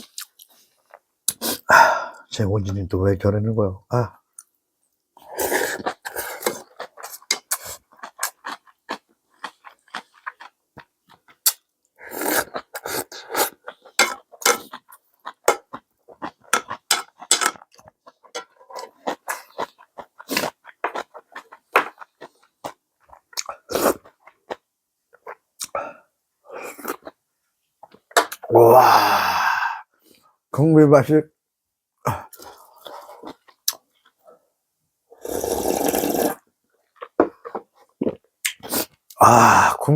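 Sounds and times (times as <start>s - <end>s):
person slurping and chewing noodles: 5.2s - 25.8s, 32.1s - 34.3s, 35.1s - 39.8s.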